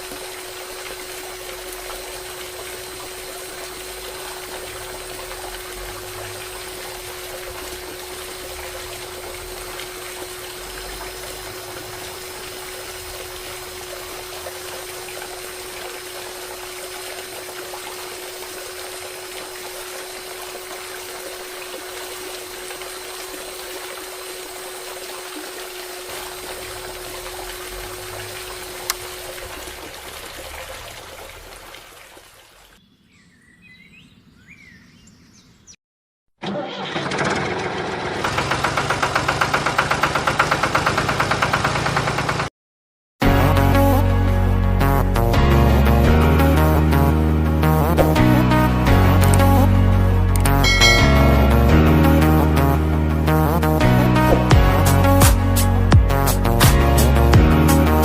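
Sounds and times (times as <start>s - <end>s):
small electric pump motor humming: 0.0s - 31.5s
water splashing and trickling: 0.0s - 32.8s, 46.9s - 58.0s.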